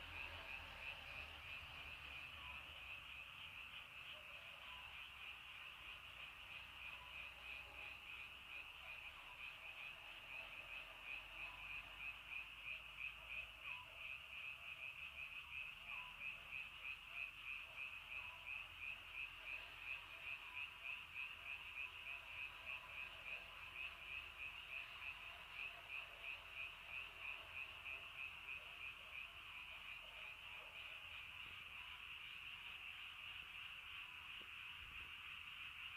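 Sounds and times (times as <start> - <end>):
frogs trilling in chorus: 0.0 - 35.9.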